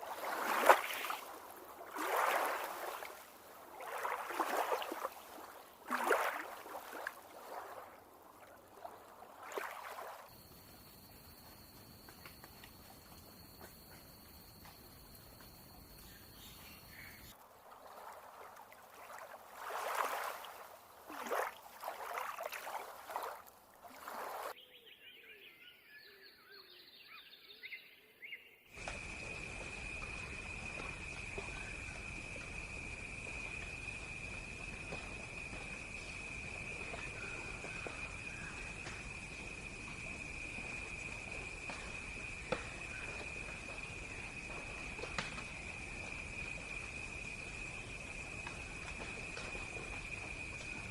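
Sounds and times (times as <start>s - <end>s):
high-pitched insect trill: 9.4s - 17.4s, 28.8s - 50.9s
bird calls: 15.9s - 17.3s
background hiss: 28.8s - 50.9s.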